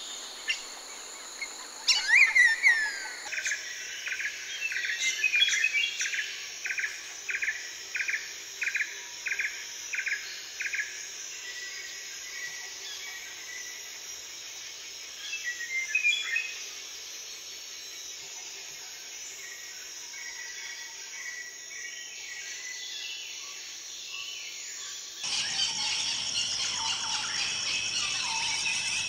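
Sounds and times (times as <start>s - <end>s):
bird calls and chirps: 0.0s - 8.2s, 25.2s - 29.0s
insect chorus: 0.0s - 29.0s.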